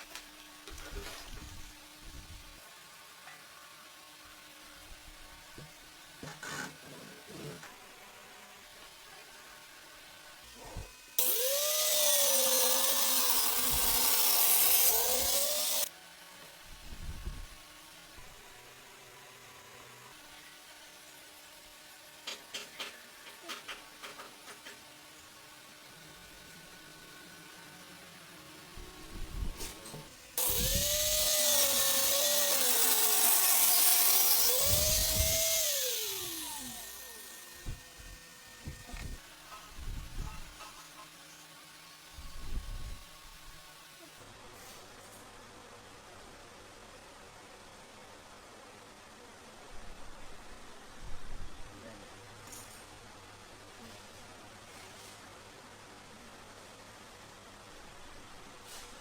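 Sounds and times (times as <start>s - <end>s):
angle grinder cutting wood: 10.5s - 15.9s, 29.6s - 42.3s.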